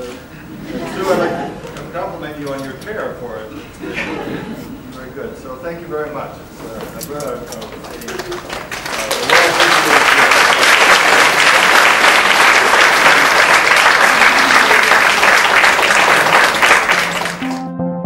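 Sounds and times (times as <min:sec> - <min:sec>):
audience applauding: 0:07.6 - 0:17.7
music: 0:16.9 - 0:18.0.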